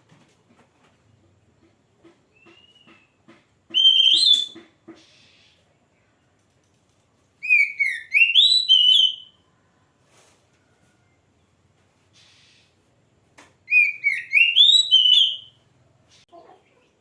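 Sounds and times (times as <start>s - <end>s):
bird singing whistled phrases: 2.4s - 4.6s, 7.4s - 9.4s, 13.7s - 15.6s.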